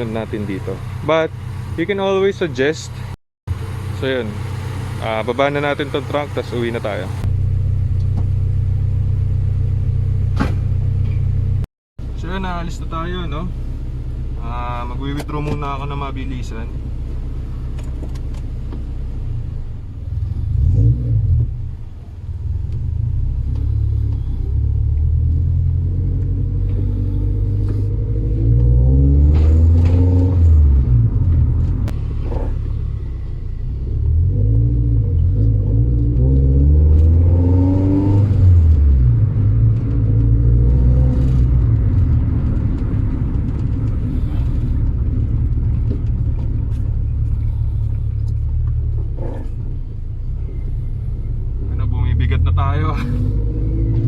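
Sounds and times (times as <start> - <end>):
car engine accelerating through gears: 17.4 - 54.0.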